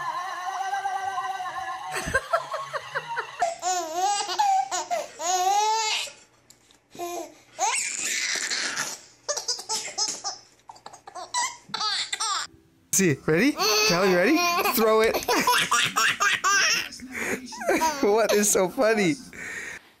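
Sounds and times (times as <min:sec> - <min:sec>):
baby giggling: 0:03.4 - 0:06.2, 0:07.0 - 0:12.5, 0:13.6 - 0:18.5.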